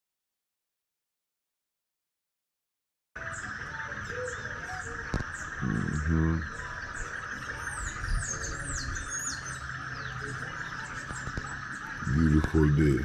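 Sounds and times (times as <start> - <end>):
insect drone: 3.2 - 13.0
small birds chirping: 3.2 - 13.0.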